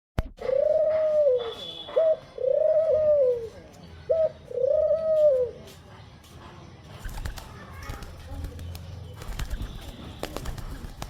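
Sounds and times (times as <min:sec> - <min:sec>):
dove cooing: 0:00.4 - 0:05.6.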